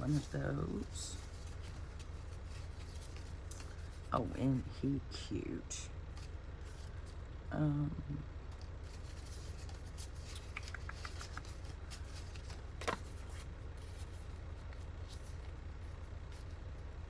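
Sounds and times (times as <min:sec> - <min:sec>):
paper rustling: 0:00.0 - 0:04.1, 0:08.9 - 0:16.7
steady low hum: 0:00.0 - 0:17.0.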